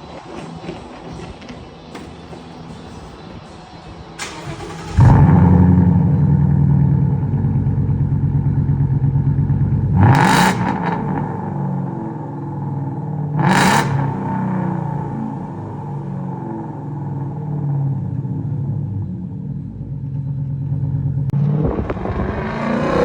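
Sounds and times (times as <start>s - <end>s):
car engine idling: 0.0s - 23.0s
car engine starting: 0.0s - 23.0s
engine revving: 4.2s - 19.0s, 21.1s - 23.0s.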